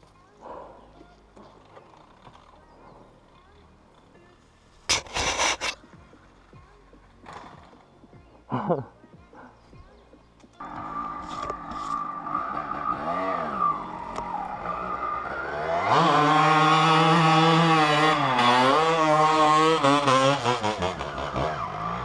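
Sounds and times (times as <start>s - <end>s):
dirt bike engine revving: 10.6s - 22.0s.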